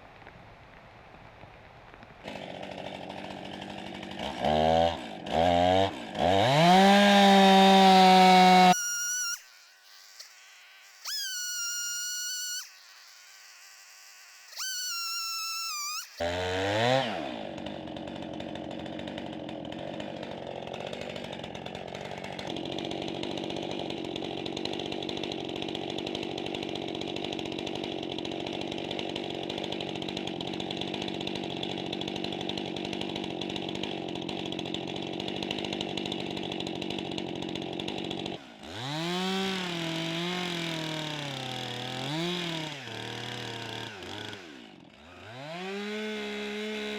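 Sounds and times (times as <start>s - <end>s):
chainsaw engine running: 2.2s - 46.9s
short pitched sounds: 8.0s - 16.3s.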